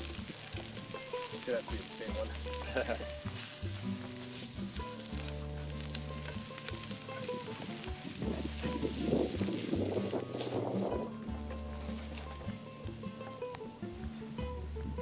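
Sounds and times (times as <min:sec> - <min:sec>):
food sizzling in skillet: 0:00.0 - 0:11.1
background music: 0:00.0 - 0:15.0.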